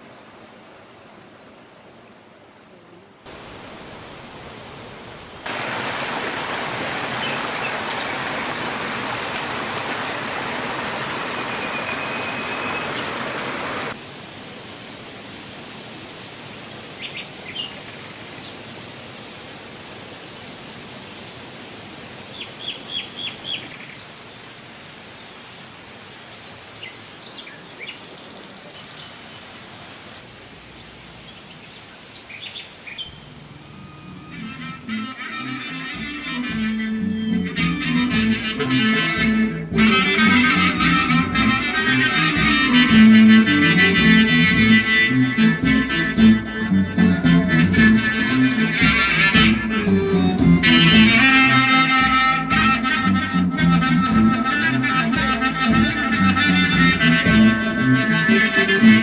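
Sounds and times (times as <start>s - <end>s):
birds chirping: 5.5s - 14.0s, 26.4s - 37.6s.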